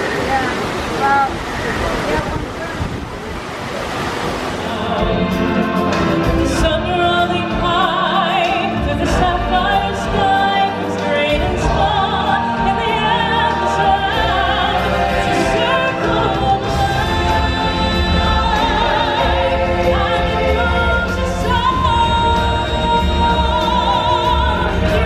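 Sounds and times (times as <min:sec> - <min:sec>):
outdoor background noise: 0:00.0 - 0:04.8
operatic choral singing: 0:04.2 - 0:25.0.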